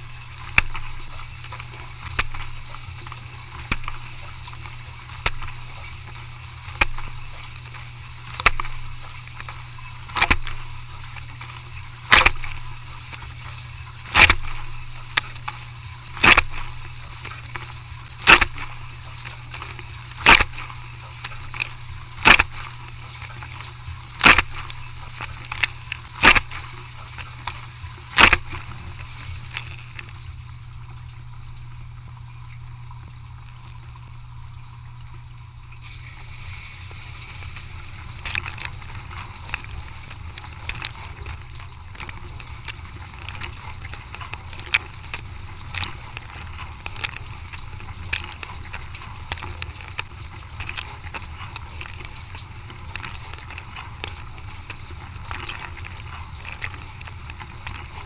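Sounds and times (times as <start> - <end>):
water spraying: 0.0 - 34.4, 35.7 - 58.0
dishwasher motor hum: 0.0 - 58.0.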